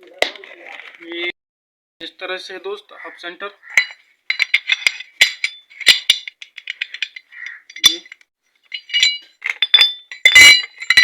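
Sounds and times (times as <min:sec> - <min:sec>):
metal parts clinking: 0:03.7 - 0:11.0.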